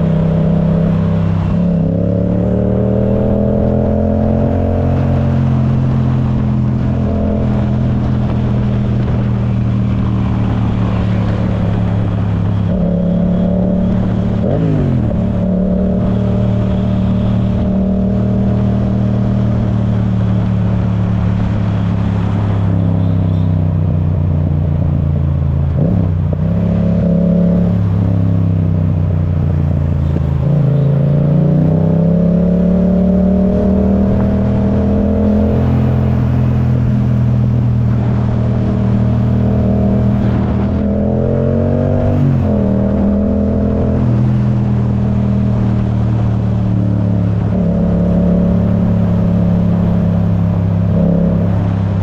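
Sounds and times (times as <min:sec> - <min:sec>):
motorcycle engine cruising under load: 0:00.0 - 0:52.0.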